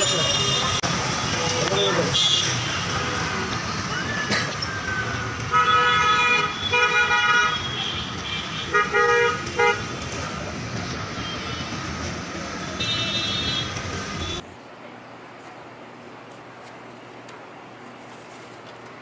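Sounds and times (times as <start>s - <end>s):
vehicle horn honking: 0.0s - 0.8s, 1.7s - 3.2s, 5.5s - 9.9s, 12.8s - 14.4s
street traffic noise: 0.0s - 19.0s.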